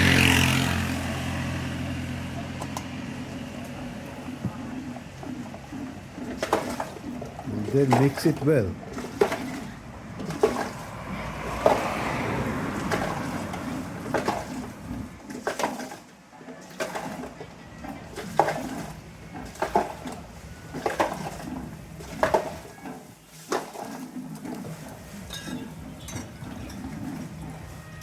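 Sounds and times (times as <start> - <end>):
liquid swishing: 3.3 - 28.0
spoon clinking against glass: 25.3 - 25.6.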